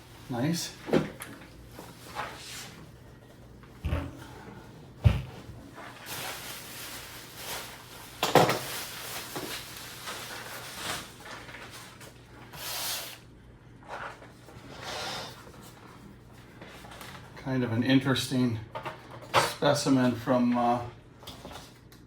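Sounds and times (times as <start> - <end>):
packing material rustling: 5.7 - 12.2.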